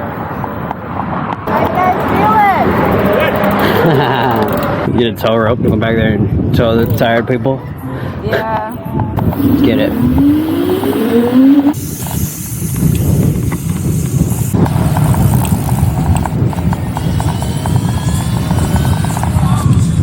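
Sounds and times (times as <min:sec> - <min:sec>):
wind rumble on microphone: 0:00.0 - 0:20.0
electric scooter motor whine: 0:09.2 - 0:11.9, 0:14.6 - 0:20.0.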